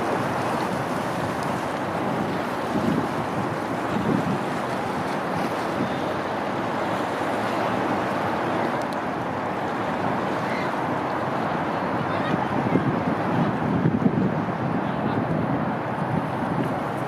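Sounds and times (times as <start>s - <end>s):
harbor water: 0.0s - 17.0s.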